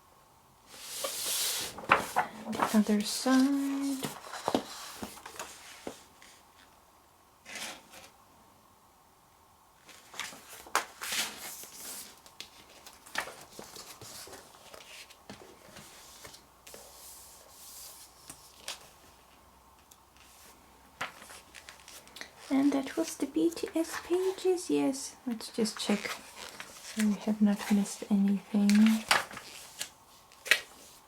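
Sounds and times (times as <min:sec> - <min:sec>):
magazine paper rustling: 0:00.7 - 0:06.1, 0:09.8 - 0:19.0, 0:20.2 - 0:24.5, 0:25.6 - 0:31.0.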